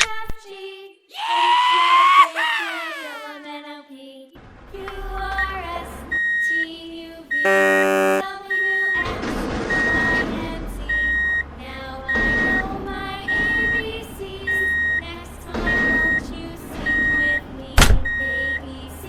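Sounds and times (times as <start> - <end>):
toy truck beeping: 7.3 - 9.0, 10.9 - 11.5, 12.1 - 12.7, 13.3 - 13.9, 14.5 - 16.2, 16.8 - 17.4
toy truck horn blast: 7.4 - 8.3.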